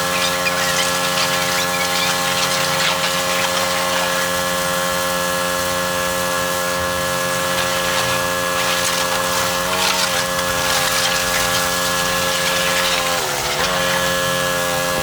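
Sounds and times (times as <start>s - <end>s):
pressure washer motor and pump: 0.0s - 15.0s
water spray hissing: 0.0s - 15.0s.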